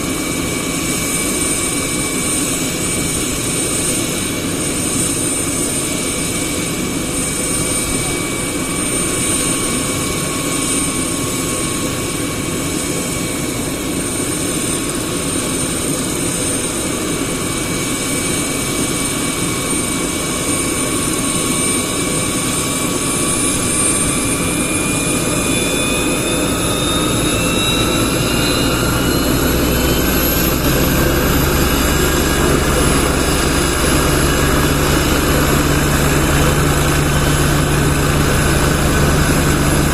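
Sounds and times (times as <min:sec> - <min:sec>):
helicopter engine whine: 0:00.0 - 0:39.9.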